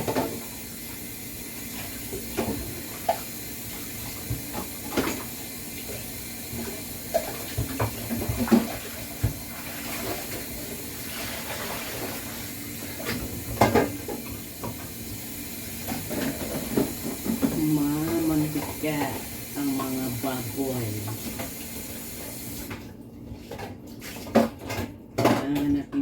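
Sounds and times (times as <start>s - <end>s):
tap water running into sink: 0.0s - 23.0s
dishes clattering: 13.6s - 14.2s.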